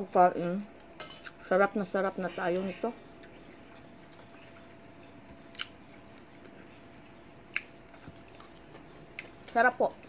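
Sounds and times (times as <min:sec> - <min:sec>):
person chewing food: 0:03.1 - 0:09.5.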